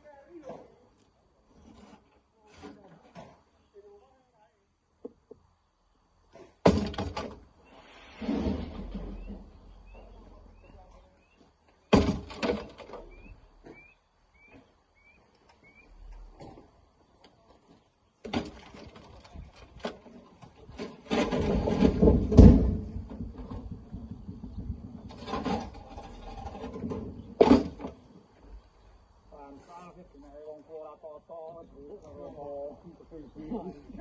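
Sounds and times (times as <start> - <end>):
rocks clattering into dump truck: 6.4 - 7.6, 8.2 - 10.7, 11.9 - 13.8, 18.2 - 28.1.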